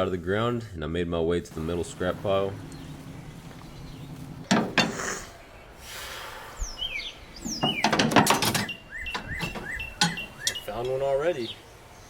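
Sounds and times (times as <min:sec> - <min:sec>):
bird chirping: 0:01.6 - 0:12.0
steel pipes clanking: 0:01.9 - 0:05.4, 0:07.4 - 0:11.0.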